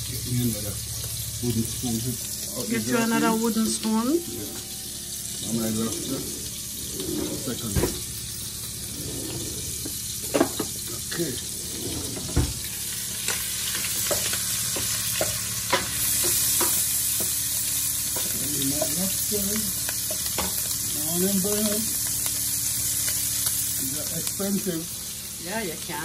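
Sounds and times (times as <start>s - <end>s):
meat sizzling in a frying pan: 0.0s - 11.7s, 12.5s - 26.0s
wooden spoon scraping a pan: 5.5s - 7.8s, 8.7s - 10.7s.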